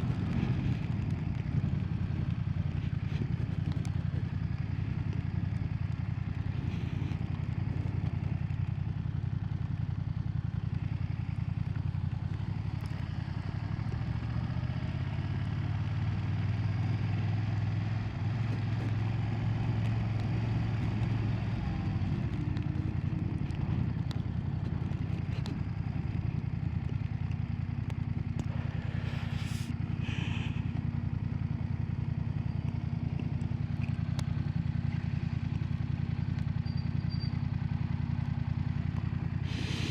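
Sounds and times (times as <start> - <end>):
motorcycle engine running: 0.0 - 39.9
short hiss: 29.0 - 30.6, 39.4 - 39.9.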